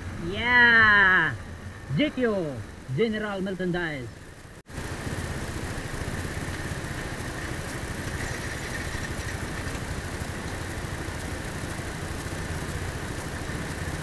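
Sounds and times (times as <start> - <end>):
motorcycle engine idling: 4.2 - 14.0.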